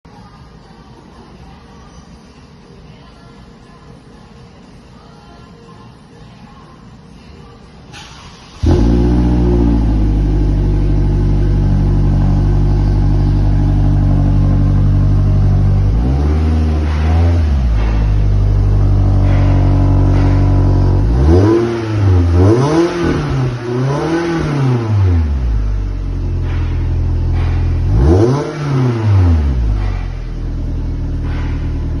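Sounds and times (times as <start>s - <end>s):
car engine starting and idling: 7.9s - 32.0s
engine revving with throttle blips: 8.4s - 32.0s.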